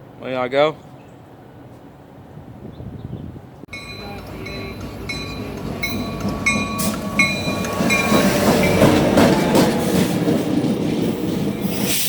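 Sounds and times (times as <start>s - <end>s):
bell dinging: 3.7s - 9.6s
train wheels clattering over rails: 3.9s - 12.0s.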